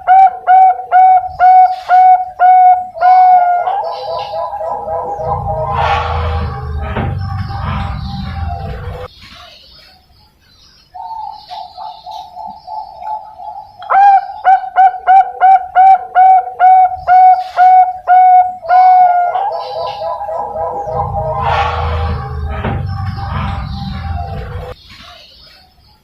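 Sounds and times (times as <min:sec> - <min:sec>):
dove purring trill: 0:00.0 - 0:05.9, 0:11.6 - 0:21.4
dove cooing: 0:00.0 - 0:06.0, 0:11.0 - 0:21.6.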